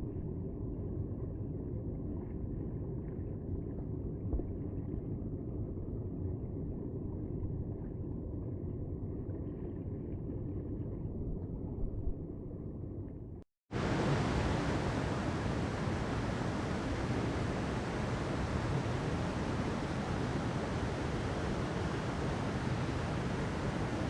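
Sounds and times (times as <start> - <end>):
muffled low rumbling: 10.3 - 24.0.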